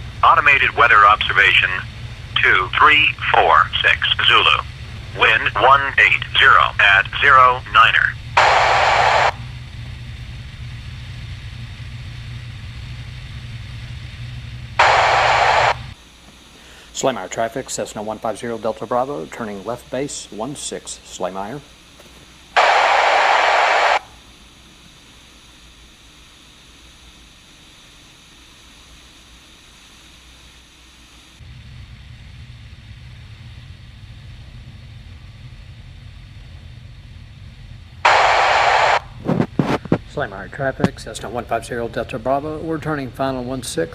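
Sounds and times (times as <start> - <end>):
airplane engine droning: 0.0 - 43.9
radio call: 0.1 - 9.4, 14.8 - 16.0, 22.6 - 24.1, 38.1 - 41.6
burst of hiss: 22.6 - 24.2.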